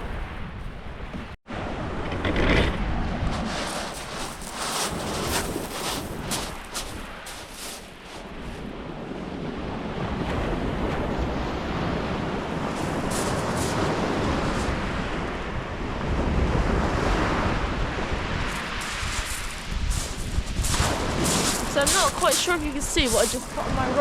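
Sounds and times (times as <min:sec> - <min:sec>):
wind on microphone: 0:00.0 - 0:24.0
surf breaking on shingle: 0:03.3 - 0:08.3, 0:12.7 - 0:14.8, 0:18.5 - 0:23.7.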